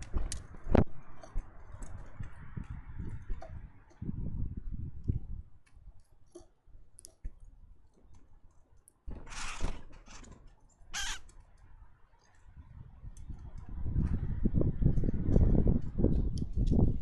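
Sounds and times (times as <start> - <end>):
rushing bursts of wings: 9.2 - 11.3
beaks and feet tapping feeder: 10.2 - 12.5.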